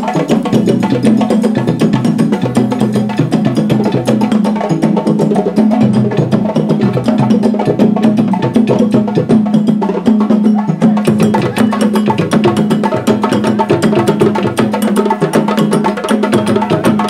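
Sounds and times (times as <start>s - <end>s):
hand drums playing fast strokes: 0.0s - 17.0s.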